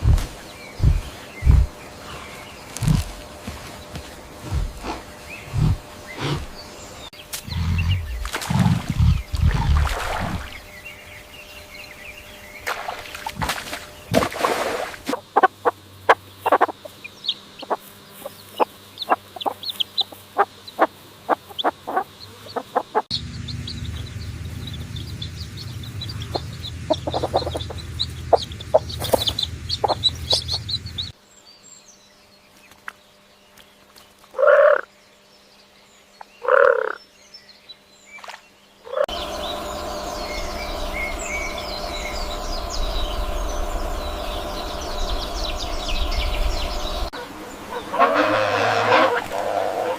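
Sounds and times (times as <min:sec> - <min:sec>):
chickens clucking: 0:15.1 - 0:23.1, 0:24.7 - 0:31.1
loud chicken calls: 0:47.1 - 0:49.9.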